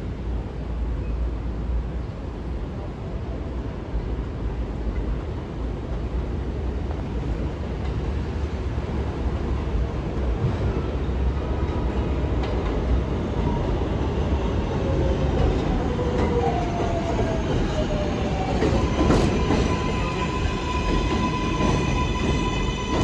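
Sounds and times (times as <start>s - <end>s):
subway train wheels rumbling: 0.0s - 23.0s.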